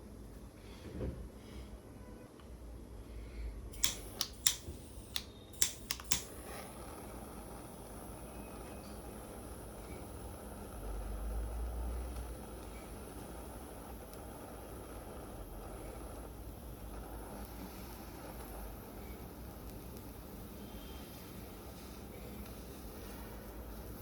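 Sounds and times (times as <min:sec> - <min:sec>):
faint steady hiss: 0:02.4 - 0:24.0
sharp clicks: 0:03.8 - 0:06.4.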